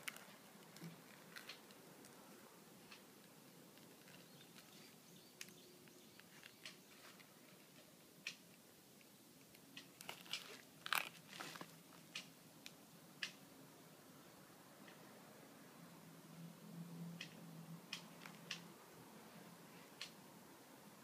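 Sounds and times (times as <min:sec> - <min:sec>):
faint clicks and crinkling: 0:00.0 - 0:13.4, 0:17.2 - 0:18.7.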